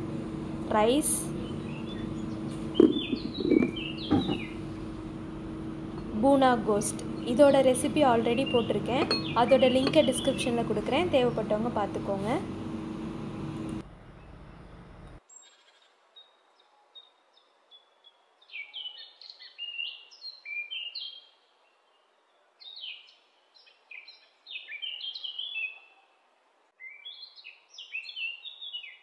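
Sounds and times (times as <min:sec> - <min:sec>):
birds chirping: 0:00.8 - 0:12.1.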